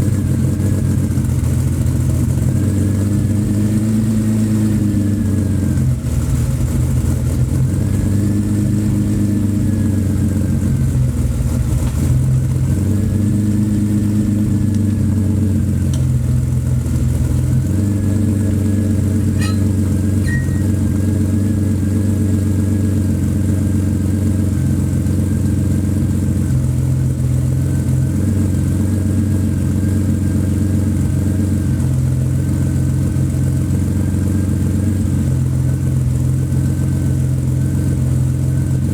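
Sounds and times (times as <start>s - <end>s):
car engine idling: 0.0s - 38.9s
faint whine: 19.0s - 21.1s.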